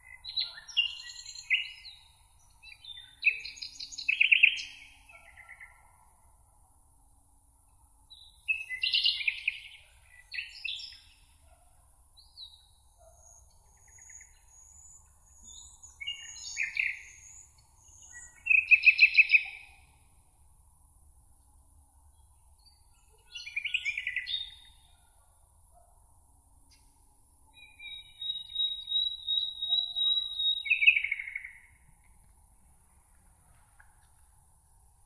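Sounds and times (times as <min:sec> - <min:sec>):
songbirds singing: 0:00.0 - 0:05.9, 0:12.2 - 0:20.0, 0:22.1 - 0:25.8, 0:27.5 - 0:32.2
faint steady hiss: 0:30.6 - 0:35.0.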